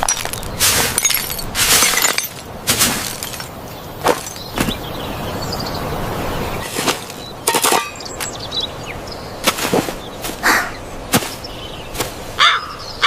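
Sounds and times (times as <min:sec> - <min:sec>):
sharp knocks and clangs: 0:00.0 - 0:04.8, 0:06.6 - 0:08.3.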